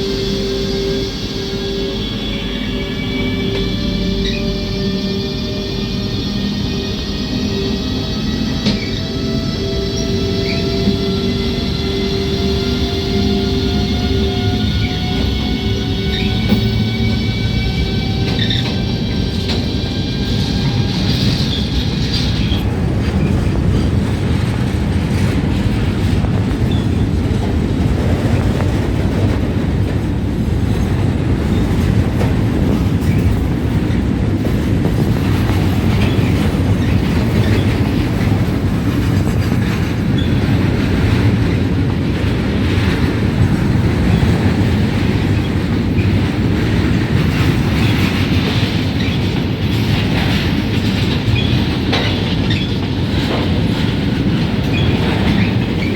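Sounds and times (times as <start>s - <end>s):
freight train wheels rumbling on rails: 0.0s - 55.9s.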